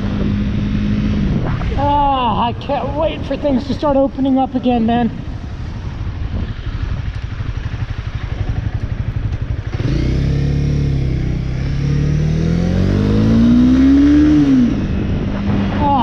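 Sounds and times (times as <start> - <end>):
motorcycle engine revving away: 6.8 - 16.0.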